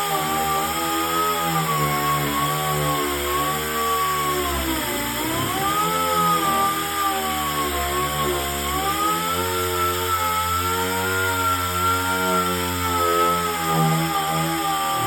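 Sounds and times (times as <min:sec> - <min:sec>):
power sander on sheet metal: 0:00.0 - 0:15.0.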